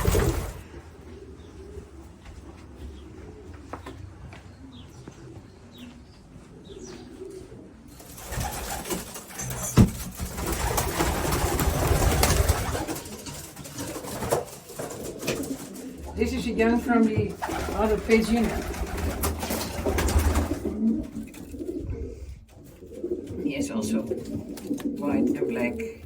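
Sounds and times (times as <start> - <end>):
rustling clatter: 0.0 - 0.8, 7.9 - 16.1
pigeons cooing: 0.0 - 26.0.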